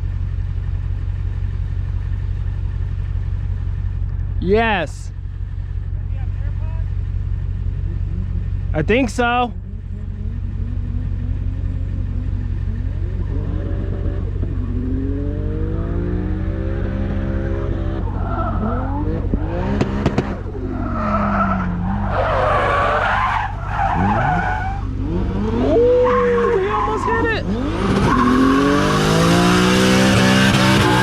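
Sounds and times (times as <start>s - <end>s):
car engine revving: 5.4s - 31.0s
tyres squealing: 20.6s - 28.8s.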